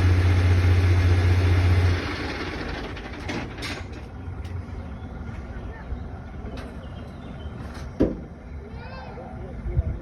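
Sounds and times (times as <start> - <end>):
truck engine turning over: 0.0 - 4.8.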